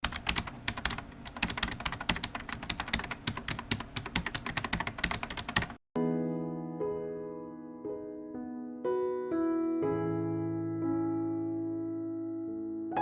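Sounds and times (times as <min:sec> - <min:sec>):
keyboard typing: 0:00.0 - 0:05.8
soft piano music: 0:06.0 - 0:13.0.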